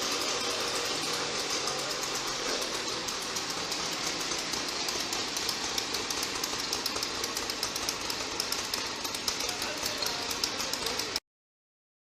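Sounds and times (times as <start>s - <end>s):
atv engine rattling: 0.0s - 11.2s.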